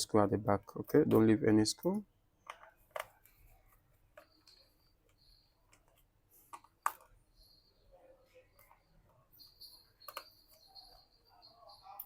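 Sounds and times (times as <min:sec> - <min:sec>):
screwdriver clicks and taps on laptop: 0:02.4 - 0:03.4.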